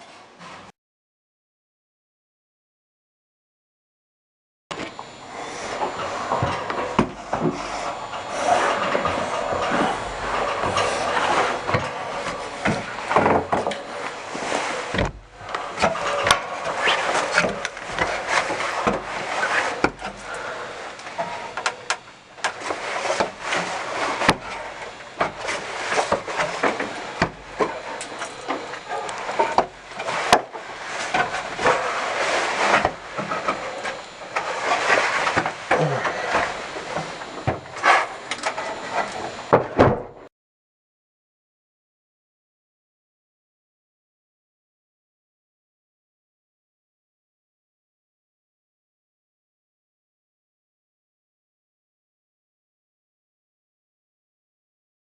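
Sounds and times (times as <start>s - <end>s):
rubbing and scraping: 5.0s - 39.5s.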